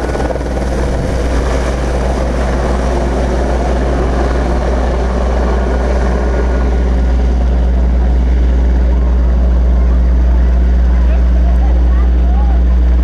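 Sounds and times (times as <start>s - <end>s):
helicopter rotor and engine hum: 0.0s - 13.0s.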